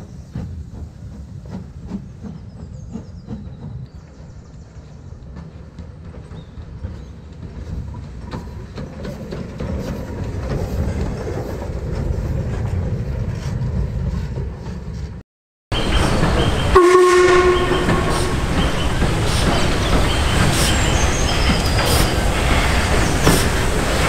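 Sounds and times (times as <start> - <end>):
rail traffic rumble: 0.0 - 24.0
locomotive horn blast: 15.8 - 18.9.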